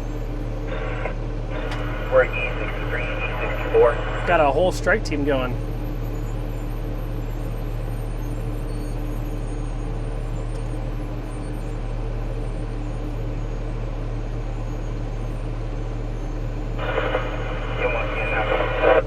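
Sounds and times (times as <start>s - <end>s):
bulldozer diesel engine running: 0.0s - 12.0s.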